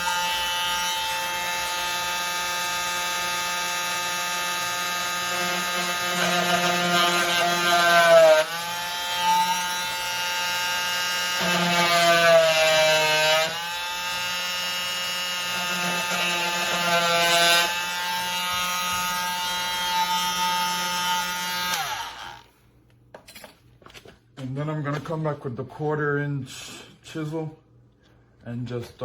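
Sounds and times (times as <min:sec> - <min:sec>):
oscillating multi-tool cutting wood: 0:00.0 - 0:22.5.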